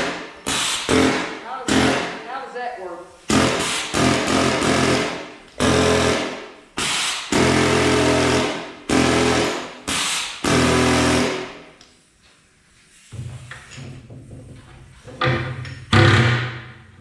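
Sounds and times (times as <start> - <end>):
air hammer chipping concrete: 0.0 - 2.2, 3.3 - 11.6.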